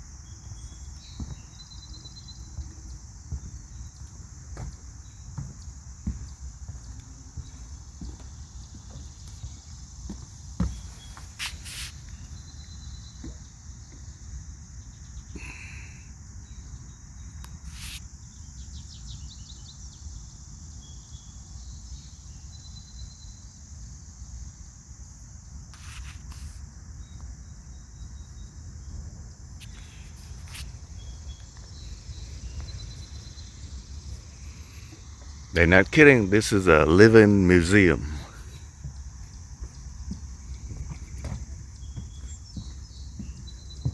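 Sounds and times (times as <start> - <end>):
crickets chirping: 0.0 - 43.9
bird calls: 29.6 - 43.9.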